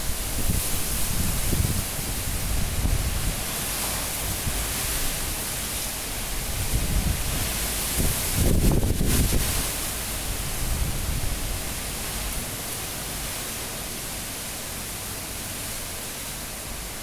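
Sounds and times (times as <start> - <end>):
strong wind rushing and gusting: 0.0 - 5.4, 6.0 - 12.0.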